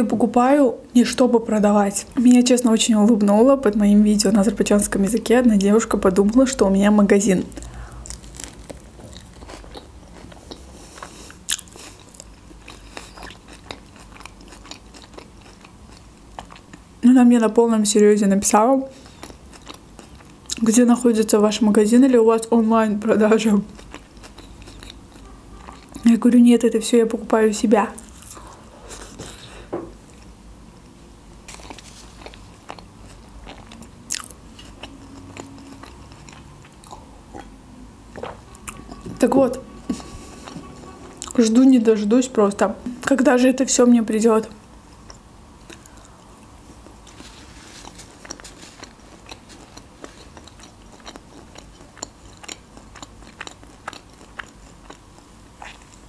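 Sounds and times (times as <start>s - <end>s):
mouth clicks and crunches: 7.5s - 16.8s, 31.5s - 37.5s, 45.0s - 56.0s
person chewing and biting food: 7.5s - 16.8s, 19.0s - 20.6s, 23.7s - 26.0s, 31.5s - 39.0s, 44.9s - 56.0s.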